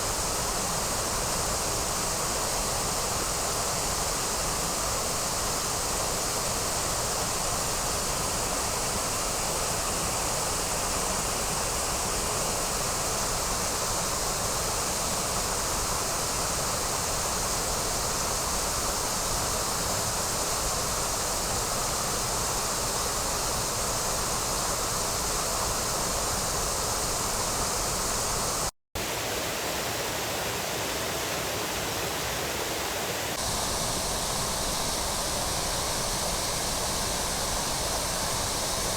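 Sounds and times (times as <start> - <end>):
waterfall roaring: 15.3 - 38.9.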